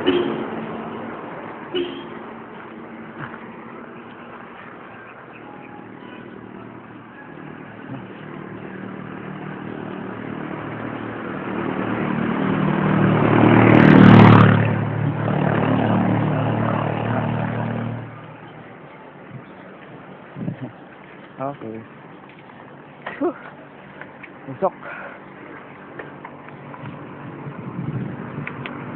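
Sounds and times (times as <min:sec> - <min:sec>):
vehicle engine passing by: 0:06.9 - 0:18.6.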